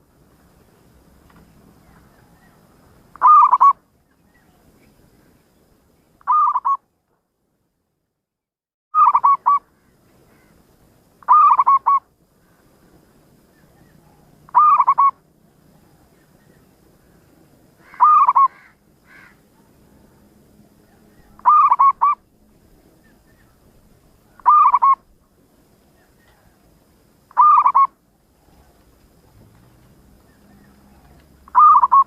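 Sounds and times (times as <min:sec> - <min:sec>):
dove cooing: 0:03.1 - 0:03.8, 0:06.3 - 0:06.8, 0:09.0 - 0:09.6, 0:11.3 - 0:12.0, 0:13.7 - 0:15.2, 0:17.8 - 0:18.7, 0:20.8 - 0:22.2, 0:24.3 - 0:25.1, 0:27.3 - 0:32.0.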